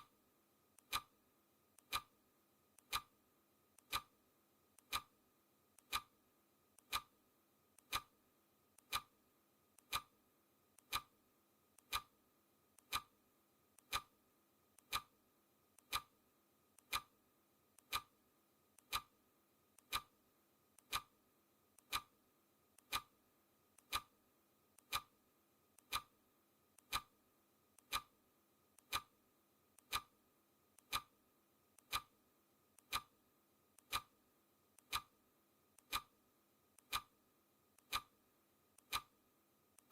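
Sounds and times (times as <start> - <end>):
clock ticking: 0.8 - 1.2, 1.8 - 2.1, 2.8 - 3.1, 3.8 - 4.2, 4.8 - 5.2, 5.8 - 6.2, 6.8 - 7.1, 7.8 - 8.1, 8.8 - 9.2, 9.8 - 10.2, 10.8 - 11.1, 11.8 - 12.2, 12.8 - 13.1, 13.8 - 14.1, 14.8 - 15.1, 15.8 - 16.2, 16.8 - 17.2, 17.8 - 18.2, 18.8 - 19.2, 19.8 - 20.2, 20.8 - 21.2, 21.8 - 22.2, 22.8 - 23.2, 23.8 - 24.2, 24.8 - 25.2, 25.8 - 26.2, 26.8 - 27.1, 27.8 - 28.2, 28.8 - 29.2, 29.8 - 30.2, 30.8 - 31.1, 31.8 - 32.2, 32.8 - 33.2, 33.8 - 34.2, 34.8 - 35.2, 35.8 - 36.2, 36.8 - 37.2, 37.8 - 38.2, 38.8 - 39.2.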